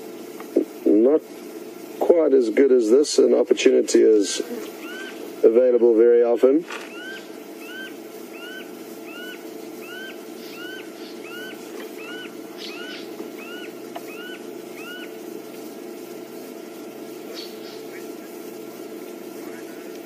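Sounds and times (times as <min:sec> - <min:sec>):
steady low hum: 0:00.0 - 0:20.0
bird high whistled notes: 0:04.8 - 0:05.2, 0:06.9 - 0:15.1.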